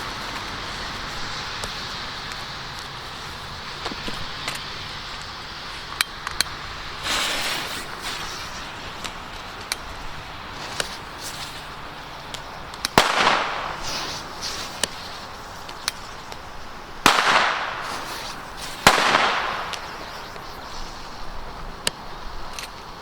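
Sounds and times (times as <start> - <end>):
small sharp pops: 3.8 - 20.5
firecracker bangs echoing: 12.6 - 20.4.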